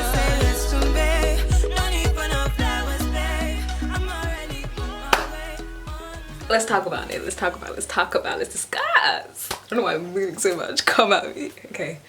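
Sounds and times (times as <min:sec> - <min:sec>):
afrobeat song with sung vocals: 0:00.0 - 0:08.3.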